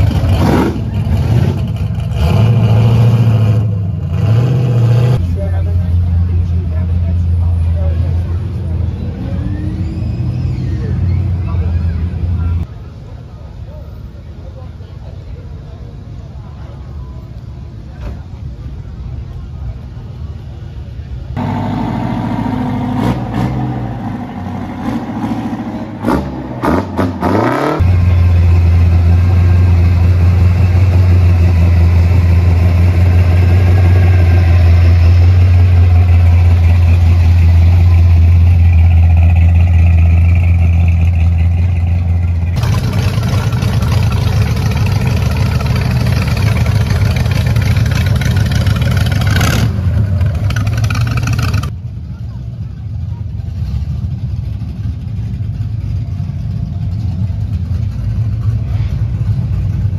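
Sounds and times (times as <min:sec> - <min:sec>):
engine revving: 0:00.0 - 0:05.3, 0:21.4 - 0:41.2, 0:41.8 - 0:51.7
low engine rumble: 0:00.0 - 0:59.9
hot rod engine rolling past: 0:21.4 - 0:51.8, 0:53.3 - 0:59.9.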